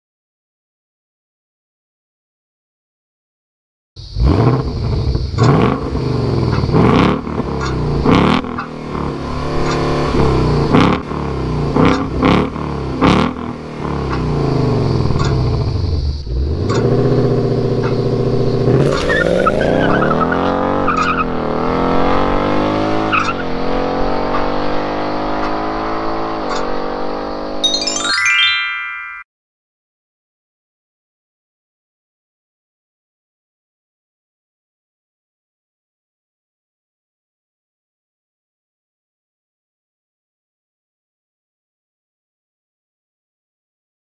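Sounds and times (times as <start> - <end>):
sports car engine revving: 4.0 - 27.6
exhaust cracks: 4.1 - 21.4.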